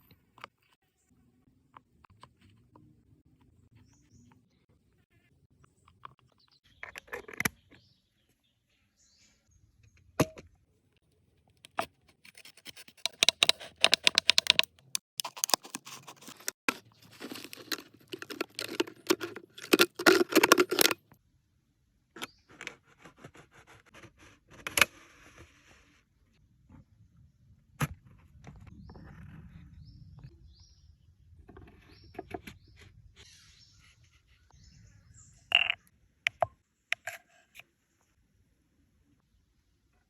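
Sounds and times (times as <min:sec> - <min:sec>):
rapid scraping and clicking: 0:11.6 - 0:21.2.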